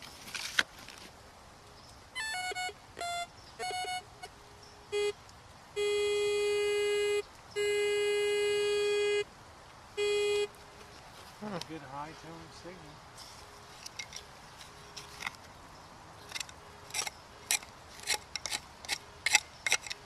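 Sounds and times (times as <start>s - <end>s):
metal detector chirping beeps: 2.2s - 4.1s, 4.9s - 5.2s, 5.8s - 9.2s
metal detector long tones: 2.2s - 4.1s.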